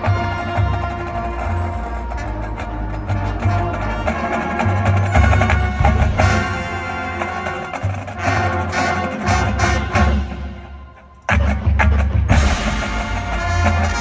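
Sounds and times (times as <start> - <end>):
sharp percussion hits: 0.0 - 10.7, 11.3 - 14.0
marching band playing: 0.0 - 14.0
heavy low drum notes: 11.3 - 14.0.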